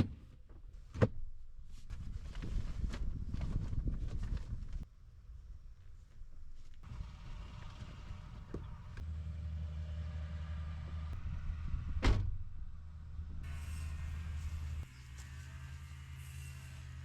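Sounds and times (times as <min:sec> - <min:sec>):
vehicle engine humming: 0:06.8 - 0:17.0
sharp thump: 0:12.0 - 0:12.4.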